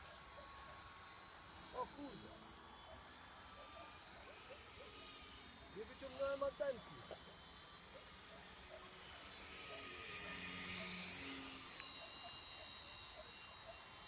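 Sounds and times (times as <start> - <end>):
model airplane motor whining: 0.0 - 14.0.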